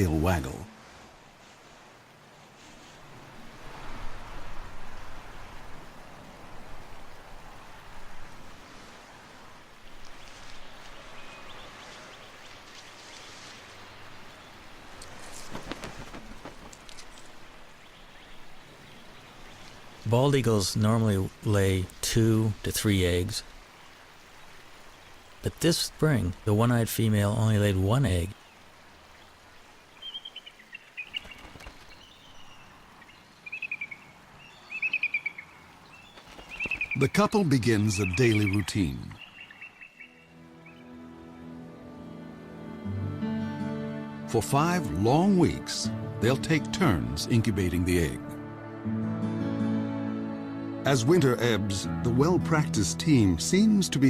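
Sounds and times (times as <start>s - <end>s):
outdoor ambient noise: 0.0s - 43.4s
faint light ticks and rustles: 9.8s - 14.1s, 14.9s - 17.6s, 35.8s - 37.0s
eagle chittering calls: 30.0s - 40.9s.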